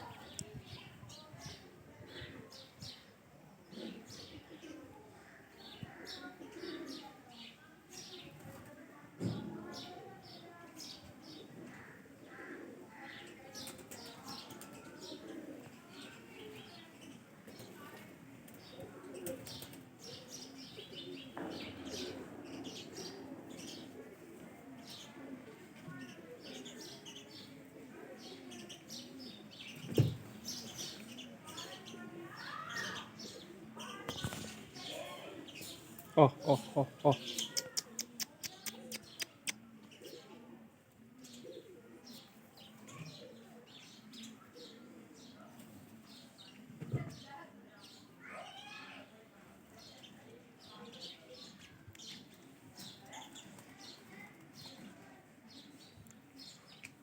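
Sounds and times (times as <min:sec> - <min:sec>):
birds chirping: 0:24.7 - 0:40.2.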